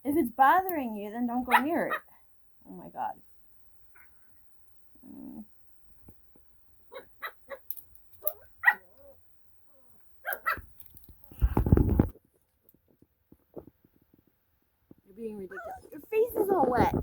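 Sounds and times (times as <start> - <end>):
puppy yapping: 1.5 - 2.1, 6.9 - 7.6, 8.2 - 9.2, 10.2 - 10.6.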